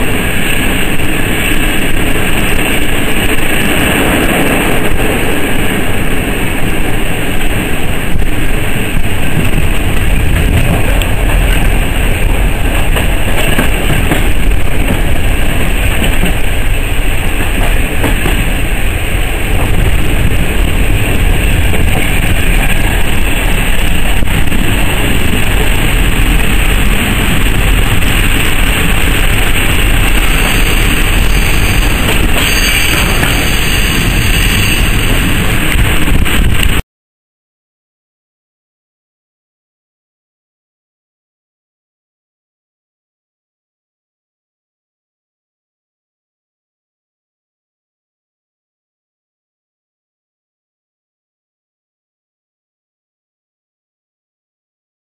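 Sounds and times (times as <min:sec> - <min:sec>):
train wheels rumbling on rails: 0:00.0 - 0:36.8.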